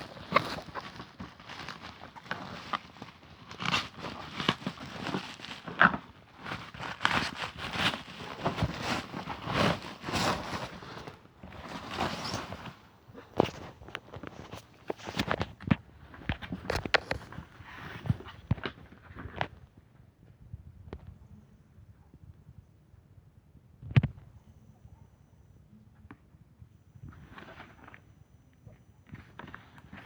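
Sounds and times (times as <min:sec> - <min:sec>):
rustling: 0:00.0 - 0:19.7, 0:29.0 - 0:30.0.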